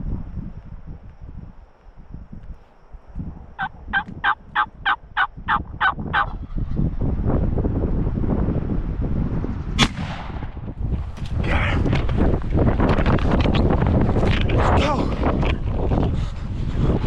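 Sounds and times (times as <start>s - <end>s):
low wind rumble: 0.0s - 17.0s
turkey calling: 3.6s - 6.4s.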